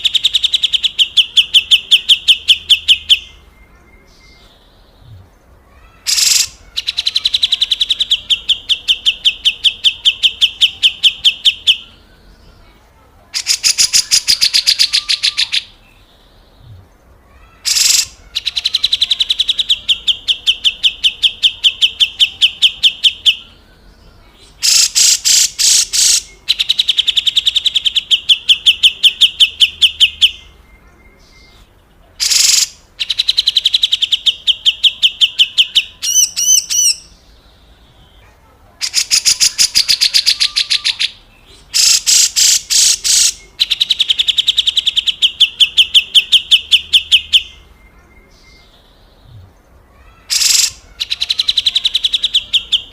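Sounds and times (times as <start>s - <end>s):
bird rattling call: 6.1s - 6.6s, 17.7s - 18.2s, 50.3s - 50.8s.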